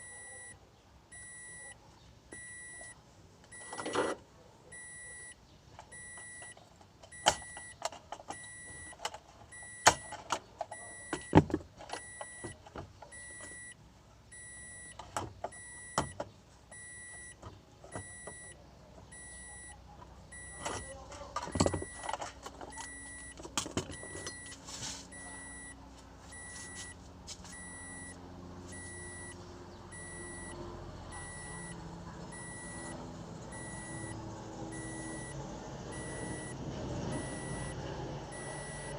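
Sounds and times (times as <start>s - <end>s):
short high beeps: 27.6s - 30.6s, 31.2s - 33.0s, 38.4s - 38.9s.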